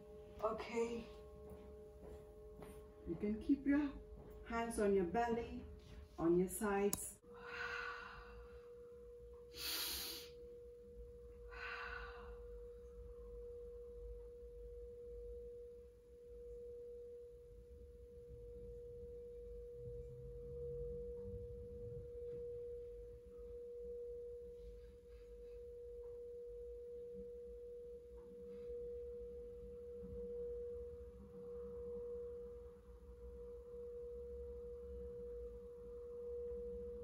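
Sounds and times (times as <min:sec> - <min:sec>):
singing bowl tone: 0:00.0 - 0:37.0.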